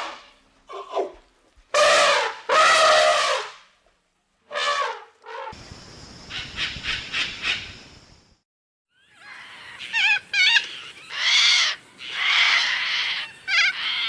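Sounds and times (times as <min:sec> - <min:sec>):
brassy trumpet-like animal calls: 0:01.7 - 0:03.6, 0:04.5 - 0:05.6.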